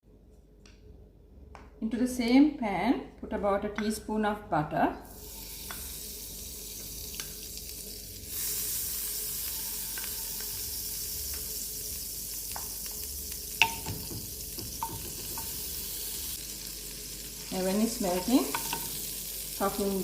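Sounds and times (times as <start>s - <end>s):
butter sizzling in a frying pan: 5.1s - 20.0s.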